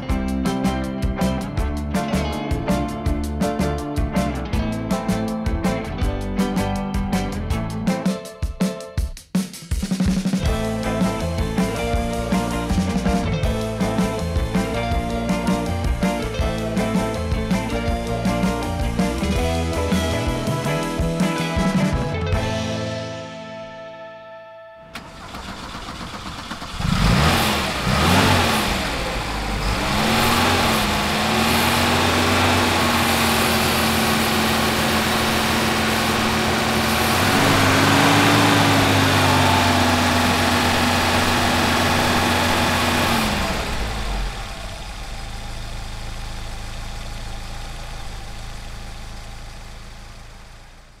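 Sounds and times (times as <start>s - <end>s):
car engine revving and idling: 10.5s - 21.9s, 25.0s - 51.0s.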